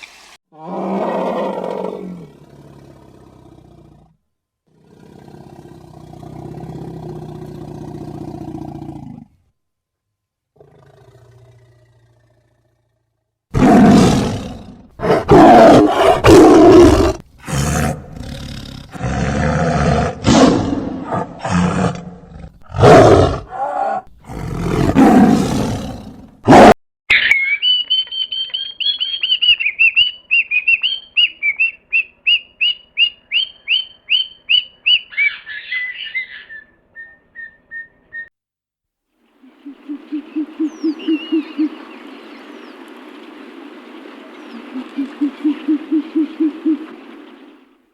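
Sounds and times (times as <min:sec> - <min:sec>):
animal roaring: 0:00.5 - 0:09.4, 0:10.6 - 0:26.8
bird calling in high notes: 0:27.1 - 0:38.3, 0:39.5 - 0:42.4, 0:44.4 - 0:47.6
low rapid owl-like hooting: 0:39.4 - 0:42.1, 0:44.5 - 0:47.6.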